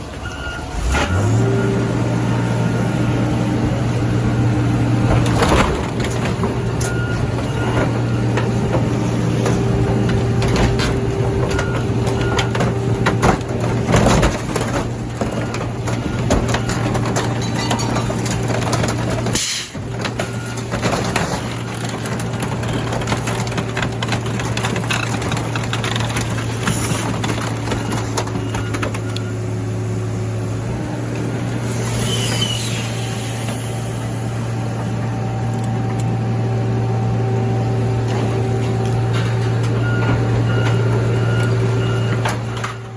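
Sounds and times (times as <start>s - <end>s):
car crusher humming: 0.0s - 42.9s
metal clicks and creaks: 5.2s - 29.3s
metal squeal: 31.7s - 33.9s.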